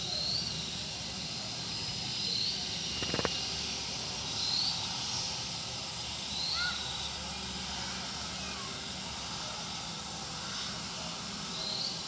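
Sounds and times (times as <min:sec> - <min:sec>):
steady outdoor hiss: 0:00.0 - 0:12.0
brief rattle: 0:03.0 - 0:03.3.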